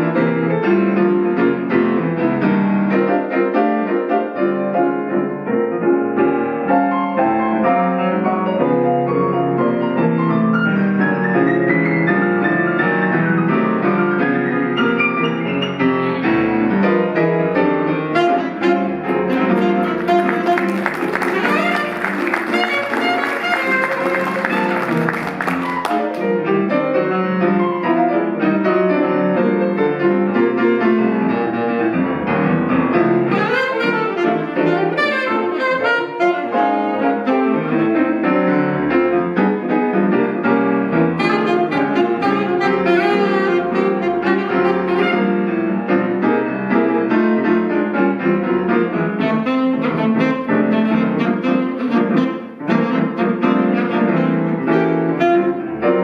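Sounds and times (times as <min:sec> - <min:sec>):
jazz piano: 0:00.0 - 0:56.0
alto saxophone playing jazz: 0:17.9 - 0:26.9, 0:33.1 - 0:39.0, 0:41.0 - 0:46.1, 0:49.1 - 0:56.0.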